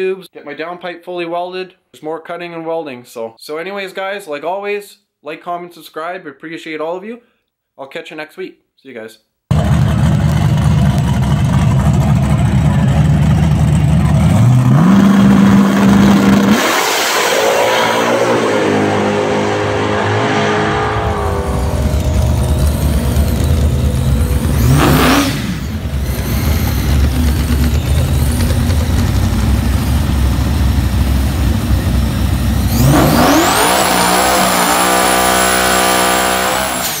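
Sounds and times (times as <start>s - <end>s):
racing car engines revving: 9.5s - 37.0s.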